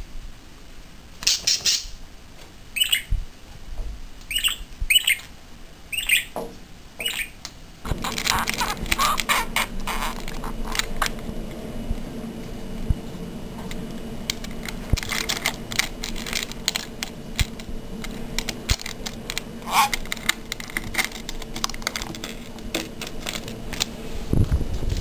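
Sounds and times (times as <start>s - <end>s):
bird squawks: 2.8s - 3.1s, 4.3s - 5.3s, 5.9s - 6.4s, 7.0s - 10.8s, 19.6s - 20.0s.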